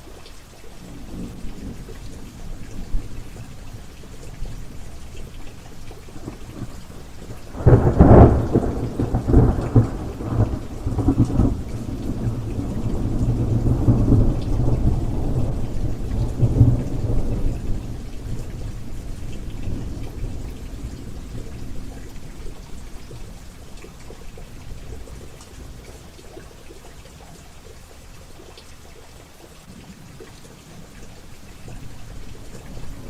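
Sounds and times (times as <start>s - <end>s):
steady rain: 0.0s - 33.0s
thunderclap and rumble: 0.9s - 25.6s, 31.6s - 33.0s.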